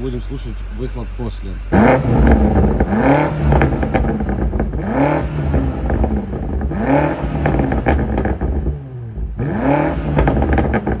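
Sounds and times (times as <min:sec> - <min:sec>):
car engine revving: 0:00.0 - 0:11.0
exhaust pops and crackles: 0:00.0 - 0:11.0.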